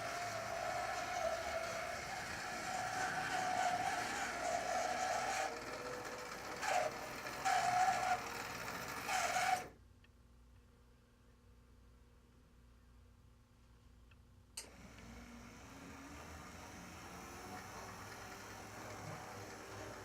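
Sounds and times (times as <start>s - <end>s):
model train motor whine: 0.0s - 9.7s, 14.6s - 20.0s.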